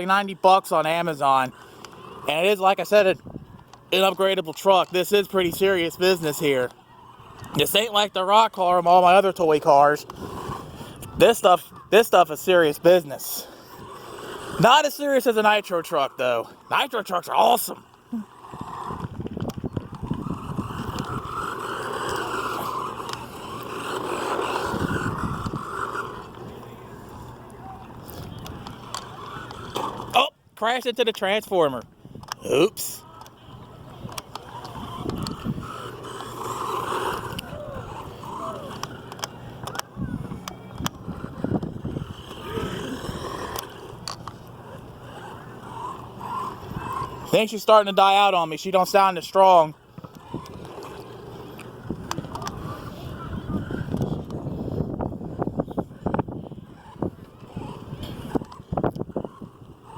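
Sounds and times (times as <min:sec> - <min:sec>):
electric motor whining: 0:01.5 - 0:04.2, 0:04.8 - 0:30.2, 0:32.2 - 0:59.9.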